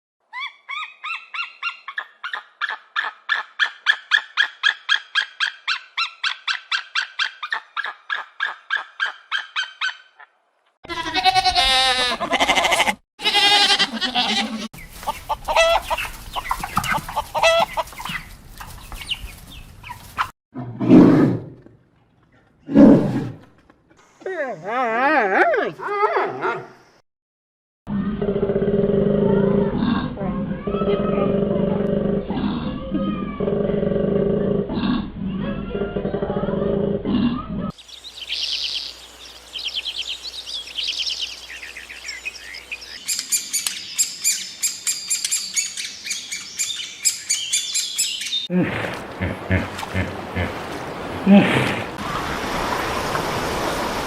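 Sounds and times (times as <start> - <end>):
chickens clucking and squawking: 13.8 - 18.3
rapid high bird chirps: 37.8 - 48.5
songbird trilling: 37.8 - 48.5
loud low animal calls: 48.5 - 52.0.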